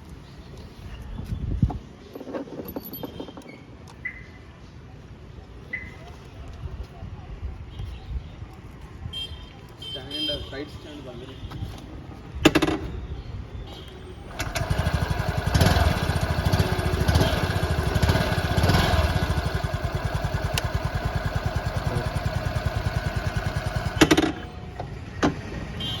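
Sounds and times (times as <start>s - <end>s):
scooter engine revving and idling: 14.3s - 26.0s.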